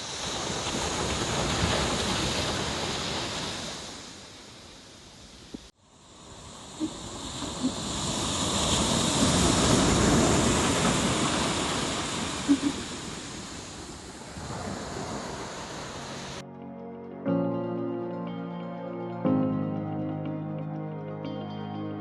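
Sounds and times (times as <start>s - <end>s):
ocean surf wave washing: 0.0s - 16.4s.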